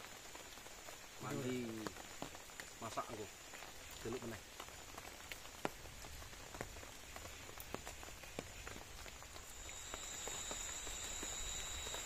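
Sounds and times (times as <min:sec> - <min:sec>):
faint high-pitched insect drone: 0:00.0 - 0:04.3, 0:07.0 - 0:12.0
rain drops tapping: 0:00.0 - 0:12.0.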